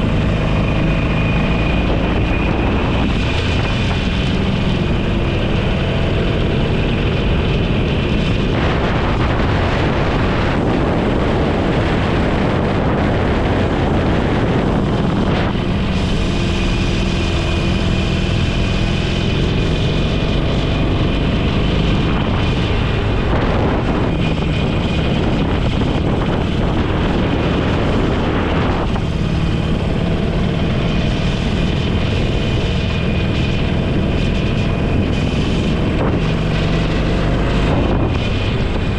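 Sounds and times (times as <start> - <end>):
motorcycle engine running: 0.0 - 38.9
wind rushing over microphone: 0.0 - 38.9.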